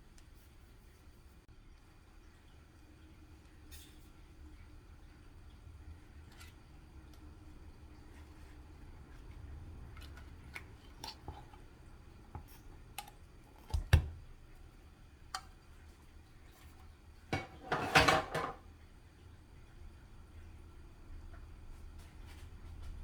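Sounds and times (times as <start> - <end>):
dishes and cutlery clinking: 17.3 - 18.6.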